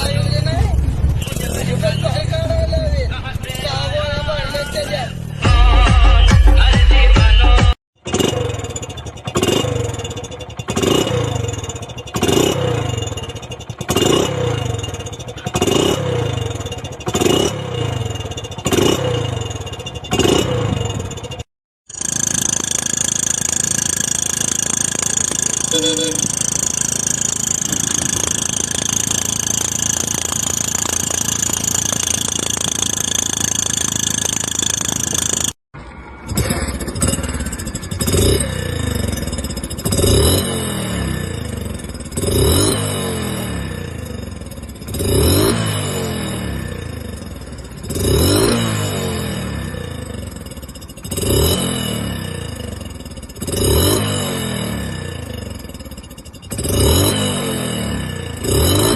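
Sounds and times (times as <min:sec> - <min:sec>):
motorcycle engine revving: 0:00.0 - 0:07.1, 0:08.0 - 0:58.9.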